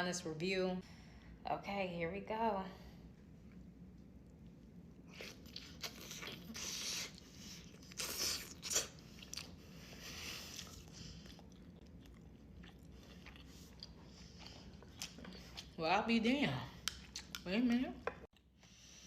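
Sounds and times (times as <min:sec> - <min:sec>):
chewing food: 0:05.1 - 0:15.8, 0:16.7 - 0:17.5.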